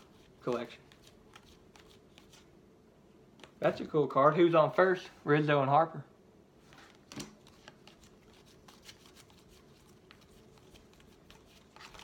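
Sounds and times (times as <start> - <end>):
trading cards clicking and rustling: 0.0 - 2.4, 6.9 - 12.0.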